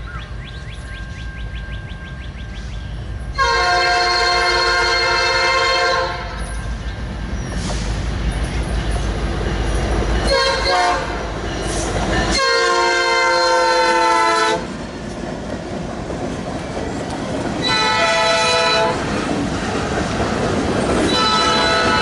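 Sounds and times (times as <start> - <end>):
passing train rumble: 0.0 - 22.0
locomotive air horn blasts: 3.4 - 6.4, 10.3 - 11.2, 12.3 - 14.7, 17.6 - 19.1, 21.1 - 22.0.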